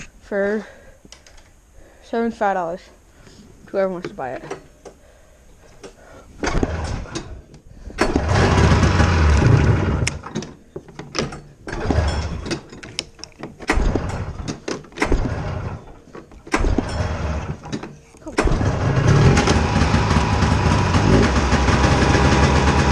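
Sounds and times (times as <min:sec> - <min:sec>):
snowmobile engine cranking: 0:06.4 - 0:07.4, 0:08.0 - 0:10.6, 0:11.6 - 0:22.9
engine running unevenly: 0:08.0 - 0:10.3, 0:13.7 - 0:16.0, 0:16.6 - 0:17.7, 0:18.3 - 0:22.9.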